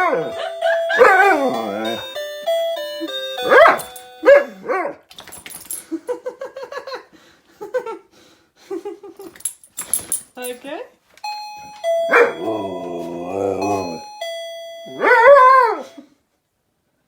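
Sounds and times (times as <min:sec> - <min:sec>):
dog howling: 0:00.0 - 0:02.2, 0:12.1 - 0:14.0, 0:14.9 - 0:16.0
electronic doorbell chime: 0:00.0 - 0:04.4, 0:11.2 - 0:16.0
dog yelping barks: 0:03.4 - 0:05.0, 0:12.1 - 0:12.6.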